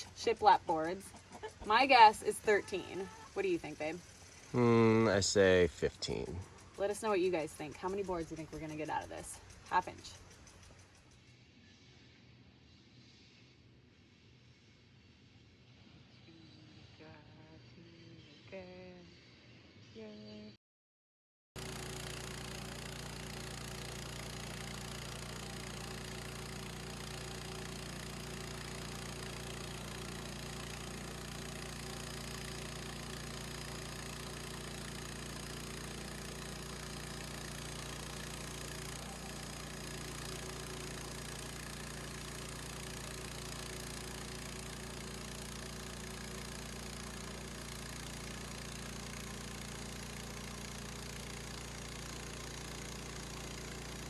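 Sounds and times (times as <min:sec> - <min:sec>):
gas engine running: 0:00.0 - 0:11.0, 0:21.6 - 0:54.0
bandsaw cutting log: 0:21.6 - 0:54.0.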